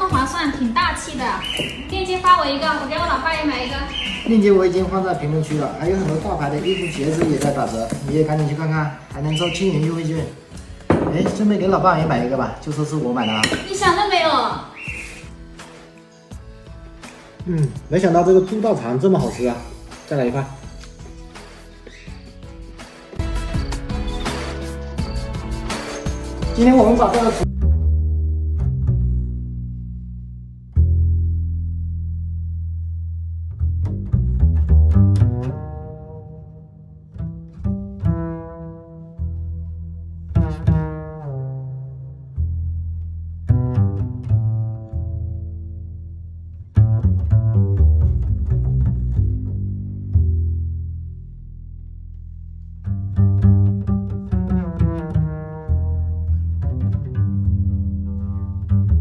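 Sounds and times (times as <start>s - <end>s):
low string music: 0.0s - 59.0s
deep bass line: 22.2s - 59.0s
plucked notes: 24.3s - 32.3s, 33.5s - 59.0s.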